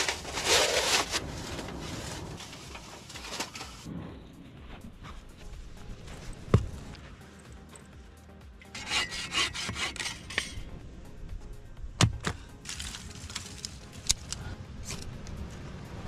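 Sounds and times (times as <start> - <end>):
hand saw cutting wood: 8.7 - 10.6.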